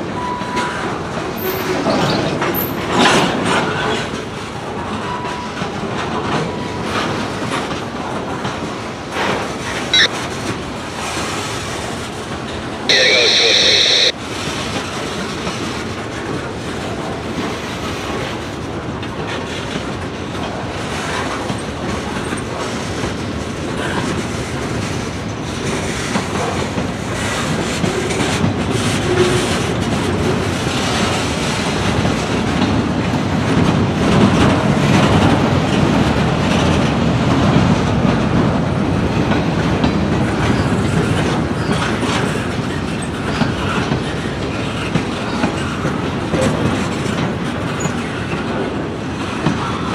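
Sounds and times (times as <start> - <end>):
wheels clacking over rail joints: 14.9 - 49.9.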